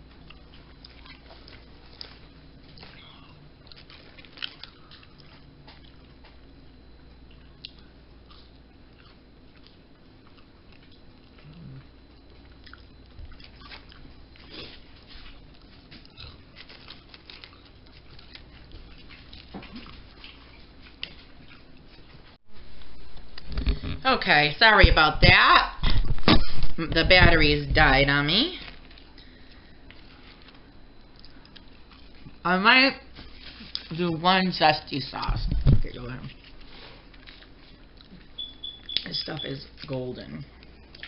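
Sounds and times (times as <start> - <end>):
person chewing food: 0.0 - 24.0, 28.6 - 32.4, 36.3 - 39.0, 40.5 - 41.0
faint low hum: 0.0 - 41.0.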